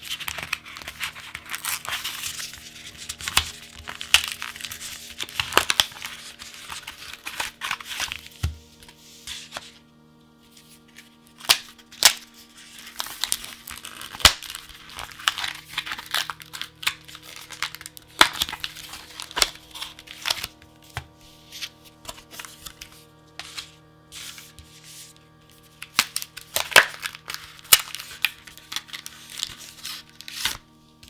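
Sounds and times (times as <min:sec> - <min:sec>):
plastic packaging tearing and crinkling: 0:00.0 - 0:08.4, 0:11.4 - 0:20.7, 0:25.5 - 0:30.6.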